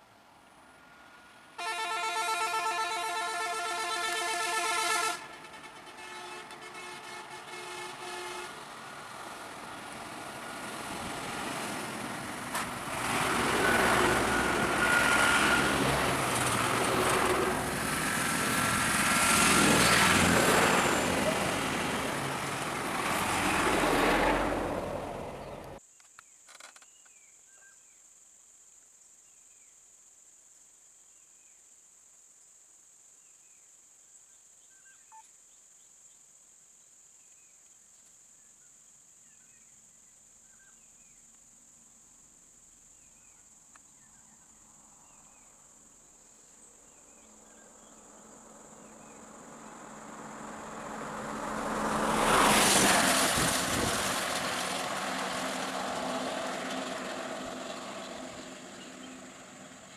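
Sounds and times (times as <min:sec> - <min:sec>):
vehicle passing: 0:00.8 - 0:25.8, 0:47.2 - 0:59.9
high insect drone: 0:01.6 - 0:25.1, 0:41.0 - 0:53.0
faint bird chirps: 0:34.6 - 0:35.9.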